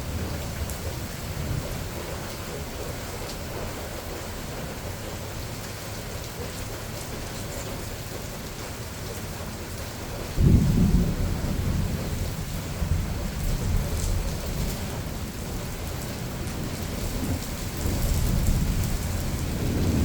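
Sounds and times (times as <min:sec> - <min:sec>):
thunder clap and rumble: 0:00.0 - 0:03.6, 0:10.2 - 0:20.0
steady rain falling: 0:00.0 - 0:20.0.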